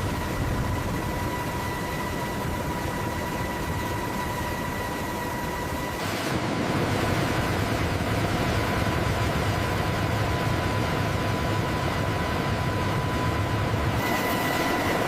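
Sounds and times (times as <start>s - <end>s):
high whine: 0.0s - 15.0s.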